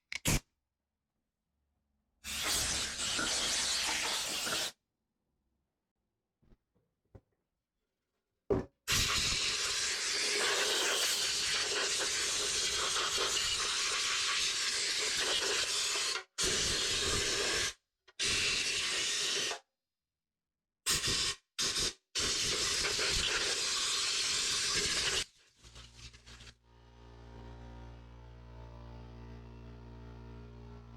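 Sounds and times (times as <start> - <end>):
pressurised gas hissing: 2.3 - 4.7.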